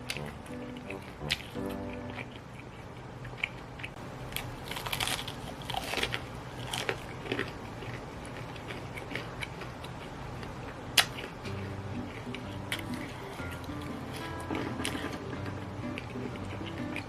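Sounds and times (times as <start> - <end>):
mouth noises: 0.0 - 3.9
biting and chewing: 0.0 - 17.0.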